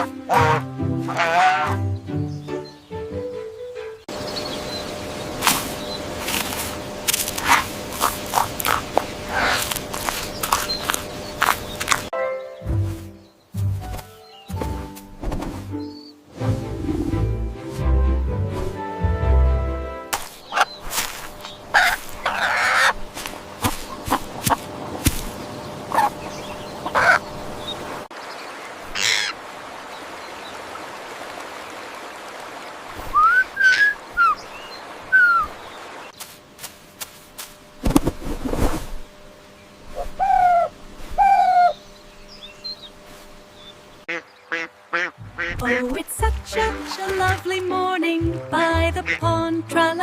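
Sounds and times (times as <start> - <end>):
birds chirping: 0.0 - 6.2, 6.8 - 15.0, 15.7 - 16.2, 20.3 - 36.4, 39.0 - 47.5
harsh bird calls: 8.7 - 12.1, 20.4 - 24.5, 25.4 - 30.6, 33.1 - 36.2, 39.6 - 45.8.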